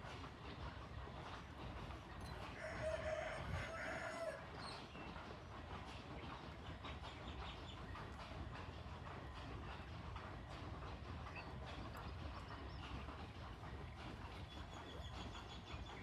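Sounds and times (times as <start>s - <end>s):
rooster crowing: 2.6s - 4.4s.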